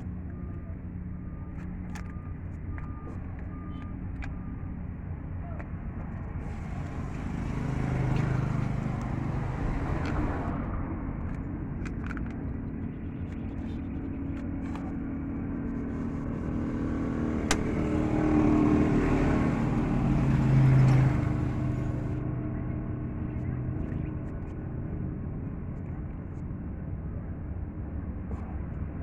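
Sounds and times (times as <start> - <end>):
vehicle engine running: 0.0 - 27.2
sharp click: 17.5 - 18.2.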